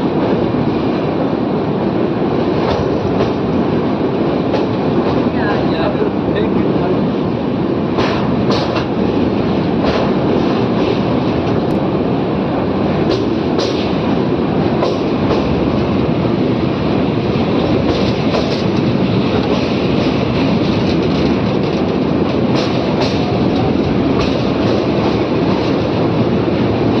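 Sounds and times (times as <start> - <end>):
train rumbling: 0.0 - 27.0
wheels clacking over rail joints: 17.4 - 27.0.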